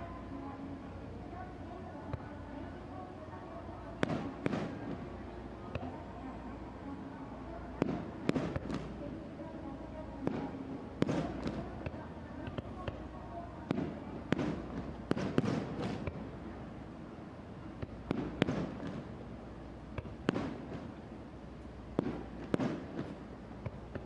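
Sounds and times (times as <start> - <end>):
fireworks bursting: 4.0 - 5.2, 7.7 - 9.0, 10.2 - 16.7, 17.6 - 21.2, 21.8 - 24.0.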